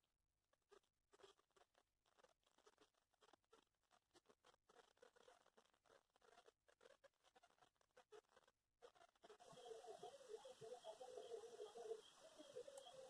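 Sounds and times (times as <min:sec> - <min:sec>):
faint small clicks: 0:11.7 - 0:13.0.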